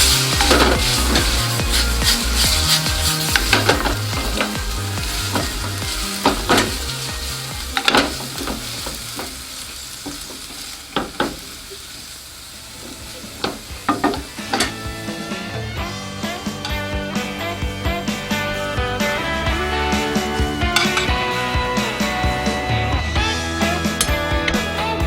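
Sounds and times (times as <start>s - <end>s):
utensil clicking against pan: 0.0s - 11.5s
food sizzling in a frying pan: 0.0s - 22.7s.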